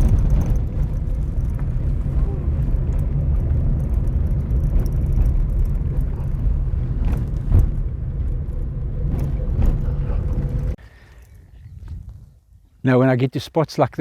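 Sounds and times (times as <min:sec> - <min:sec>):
vehicle rumbling on gravel: 0:00.0 - 0:10.8.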